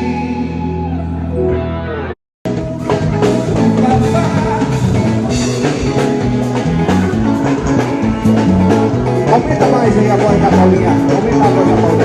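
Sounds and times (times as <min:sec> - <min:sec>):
bass line: 0:00.0 - 0:12.0
guitar: 0:00.0 - 0:12.0
drum kit beat: 0:02.4 - 0:12.0.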